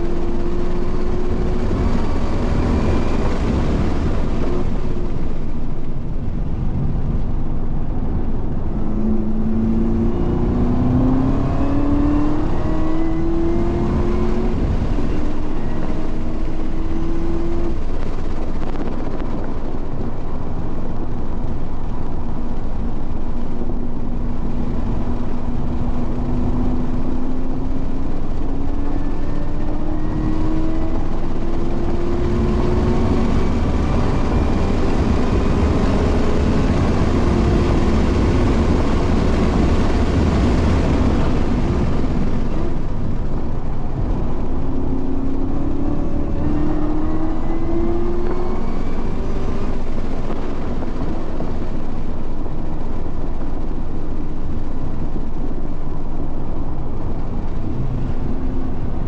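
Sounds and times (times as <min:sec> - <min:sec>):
heavy wind: 0:00.0 - 0:59.0
road rumble: 0:00.0 - 0:59.0
race car engine revving: 0:08.7 - 0:18.1, 0:24.8 - 0:43.0, 0:43.8 - 0:51.1.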